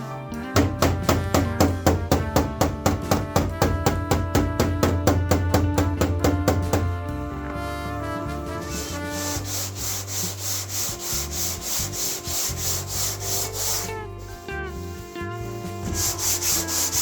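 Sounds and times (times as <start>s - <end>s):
music: 0.0s - 17.0s
sanding block rasping: 8.6s - 17.0s.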